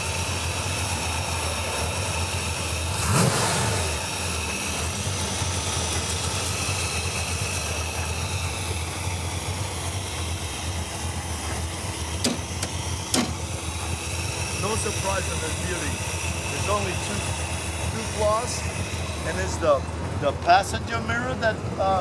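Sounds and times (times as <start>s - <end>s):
engine idling and revving: 0.0s - 22.0s
sharp click: 12.2s - 13.4s.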